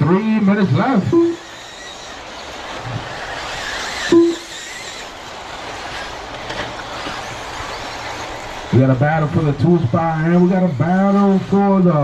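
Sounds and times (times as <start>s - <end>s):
rc buggy motors and tyres hissing: 0.0s - 12.0s
short electronic beeps: 1.0s - 1.5s, 4.1s - 4.6s.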